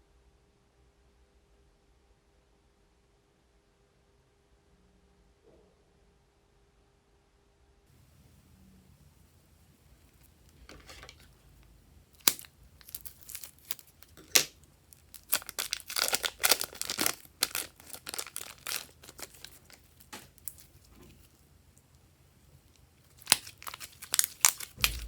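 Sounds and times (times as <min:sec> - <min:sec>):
crinkly material crackling: 0:09.8 - 0:25.0.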